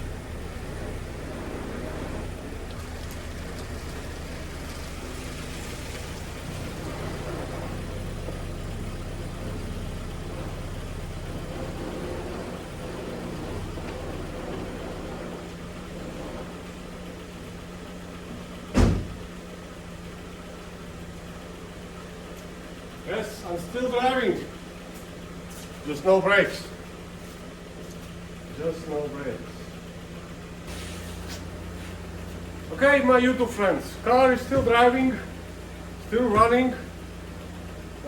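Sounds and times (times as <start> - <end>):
car engine running: 0.0 - 38.0
sharp thump: 18.7 - 19.3.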